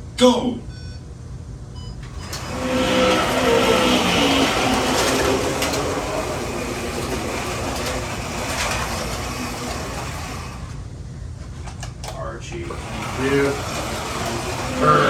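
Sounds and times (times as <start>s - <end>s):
slot cars rattling on track: 2.1s - 10.8s, 12.4s - 15.0s
whir of small electric motors: 2.1s - 10.8s, 12.5s - 15.0s.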